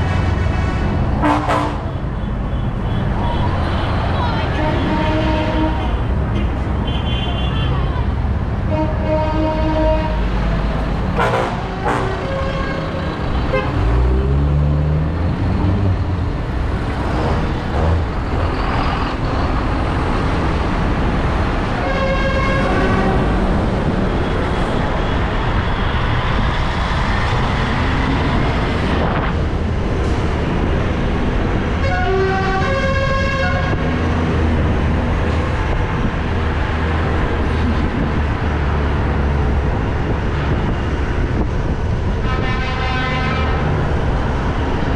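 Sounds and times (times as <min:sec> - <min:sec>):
horn sounding: 0:01.2 - 0:02.4, 0:08.7 - 0:14.1, 0:31.8 - 0:33.9
tractor revving: 0:10.0 - 0:21.6
tractor engines running: 0:10.1 - 0:21.8.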